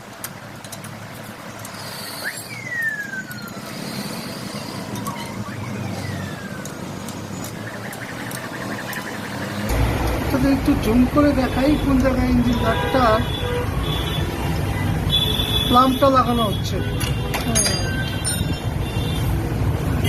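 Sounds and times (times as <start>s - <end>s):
traffic rumble: 0.0s - 20.0s
falling whistle-like tones: 2.0s - 3.7s.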